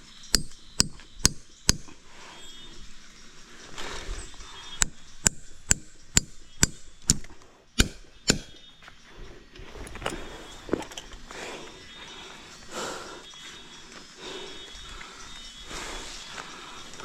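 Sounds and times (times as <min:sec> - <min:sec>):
sharp chopping strikes: 0:04.8 - 0:08.7.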